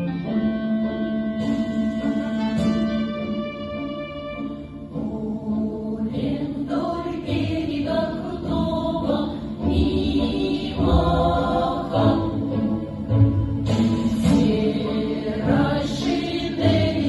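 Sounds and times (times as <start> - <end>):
instrumental accompaniment: 0.0 - 17.0
choir singing folk song: 4.9 - 17.0.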